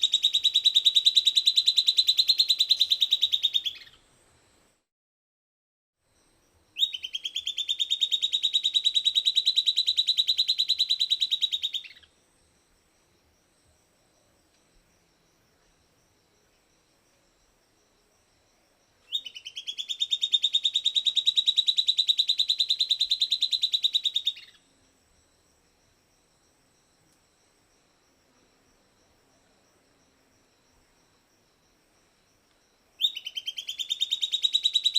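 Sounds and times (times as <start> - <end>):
bird singing a rapid trill: 0.0 - 4.0, 6.7 - 12.1, 19.0 - 24.6, 33.0 - 34.9.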